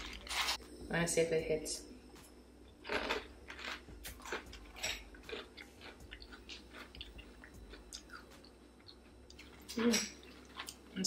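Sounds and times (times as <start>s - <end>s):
person chewing cereal: 2.8s - 10.9s.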